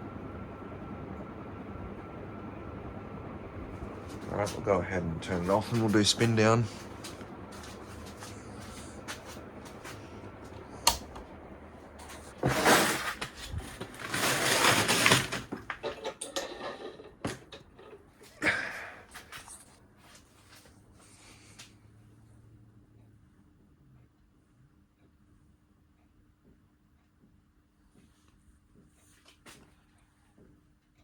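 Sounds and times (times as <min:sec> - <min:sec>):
ceiling fan whooshing: 0:00.0 - 0:22.1.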